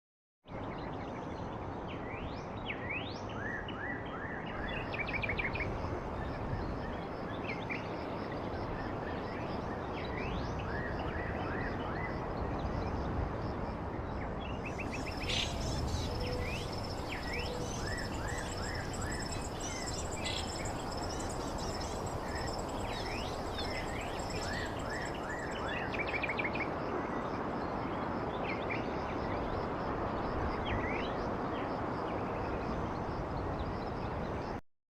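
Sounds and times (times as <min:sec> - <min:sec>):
birds chirping: 0:14.7 - 0:25.6
background hiss: 0:14.8 - 0:25.6.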